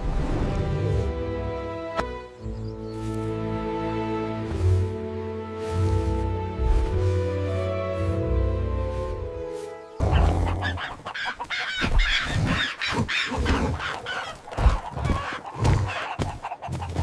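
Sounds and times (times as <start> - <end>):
geese honking: 9.5 - 17.0
chickens clucking: 10.0 - 17.0.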